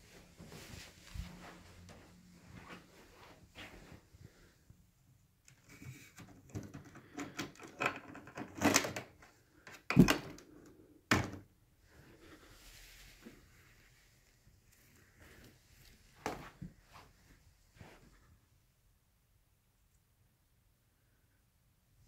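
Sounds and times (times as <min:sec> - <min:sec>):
plastic clicking and rattling: 0:05.5 - 0:10.5.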